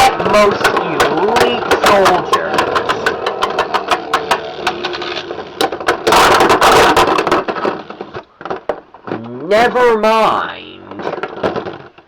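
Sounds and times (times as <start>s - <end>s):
spinning tops clicking impacts: 0.0s - 7.4s
spinning tops scraping and rattling: 0.0s - 8.1s.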